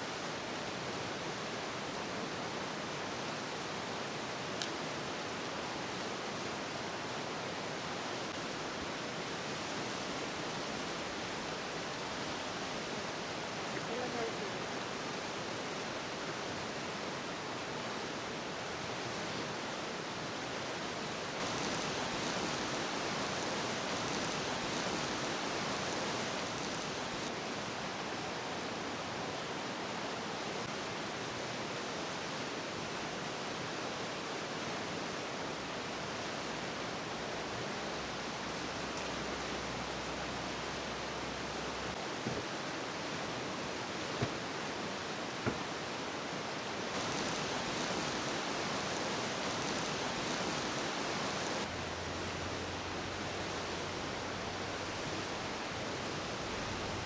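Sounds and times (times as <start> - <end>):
steady rushing noise: 21.4 - 27.3, 47.0 - 51.7.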